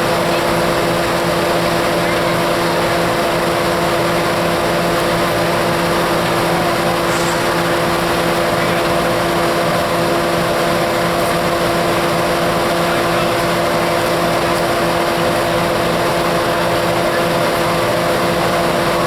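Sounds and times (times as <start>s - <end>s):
large engine droning: 0.0s - 19.0s.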